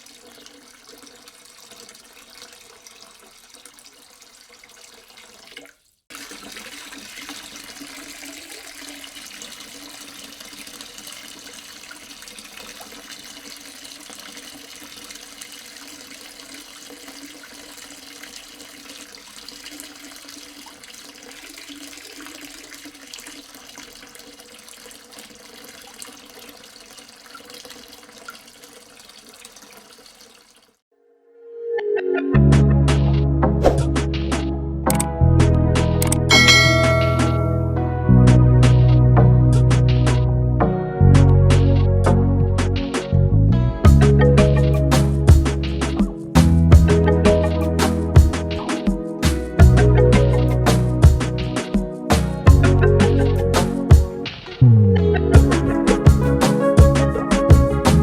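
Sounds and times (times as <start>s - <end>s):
water running and splashing: 0.0s - 30.8s, 36.3s - 37.7s, 43.8s - 58.0s.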